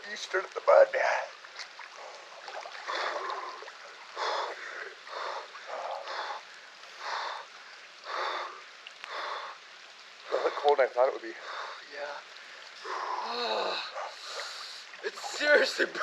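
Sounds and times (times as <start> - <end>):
person breathing hard: 4.2 - 9.6, 11.4 - 11.9.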